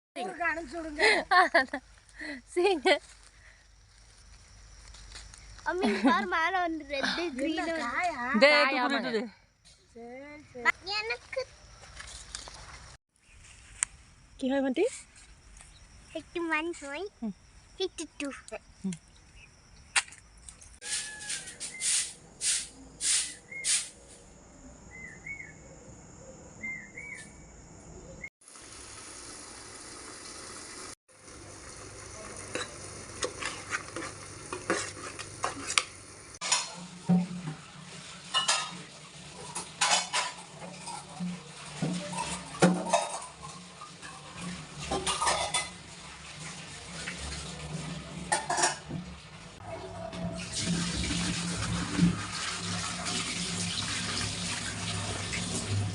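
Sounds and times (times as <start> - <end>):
frying sizzle: 20.8 - 23.8, 28.4 - 55.9
metal utensils clinking on pots: 32.2 - 37.5, 38.3 - 45.8, 48.3 - 48.9.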